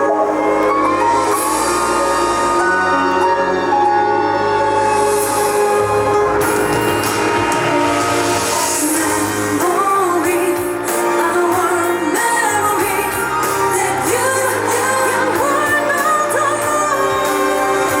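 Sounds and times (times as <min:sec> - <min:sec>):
backing track music: 0:00.0 - 0:18.0
woman singing pop song: 0:08.3 - 0:18.0.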